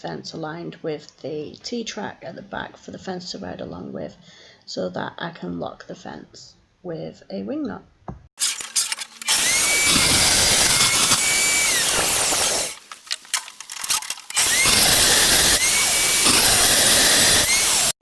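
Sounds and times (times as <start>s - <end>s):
power drill boring into wood: 8.4s - 18.0s.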